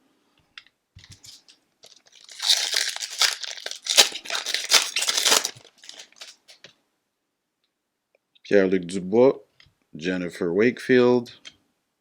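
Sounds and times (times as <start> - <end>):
foil wrapper crinkling: 1.0 - 6.6.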